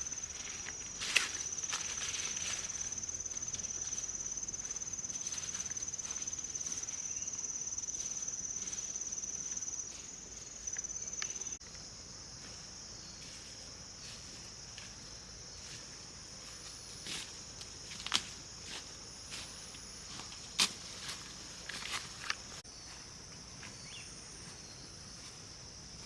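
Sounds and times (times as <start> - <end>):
insects trilling: 0.0 - 26.0
faint rustles or steps: 0.2 - 7.3.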